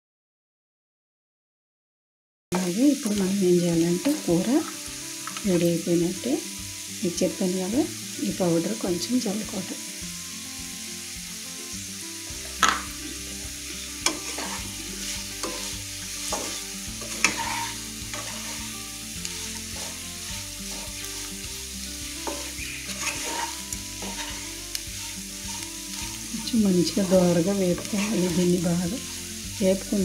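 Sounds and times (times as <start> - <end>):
food sizzling in oil: 2.6 - 30.0
spatula scraping and knocking pan: 12.3 - 29.9.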